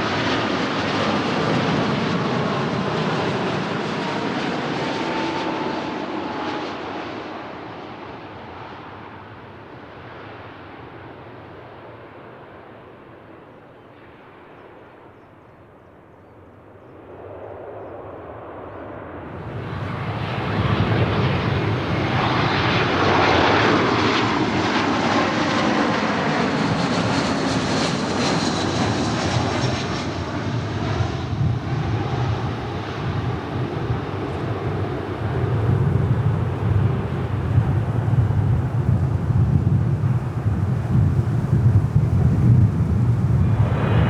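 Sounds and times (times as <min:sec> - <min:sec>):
jet airliner passing by: 0:00.0 - 0:44.0.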